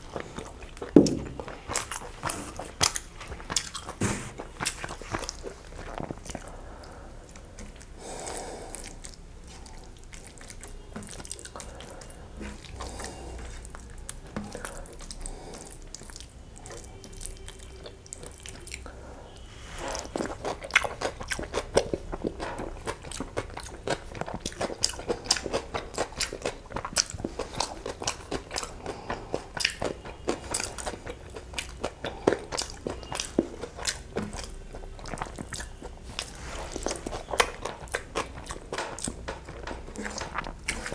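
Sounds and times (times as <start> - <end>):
loud open-mouthed chewing: 0.0 - 19.0, 19.9 - 40.9
fingers mixing rice on steel plate: 35.9 - 40.9.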